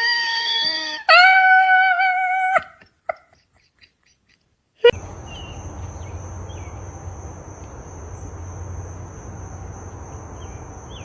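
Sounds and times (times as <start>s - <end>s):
continuous low hum: 4.9s - 11.0s
insects trilling: 4.9s - 11.0s.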